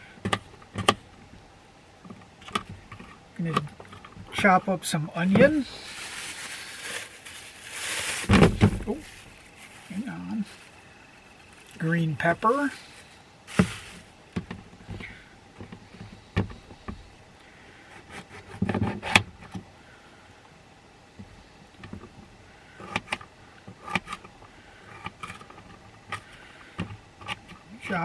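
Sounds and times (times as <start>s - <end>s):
short rustle: 5.2s - 14.2s.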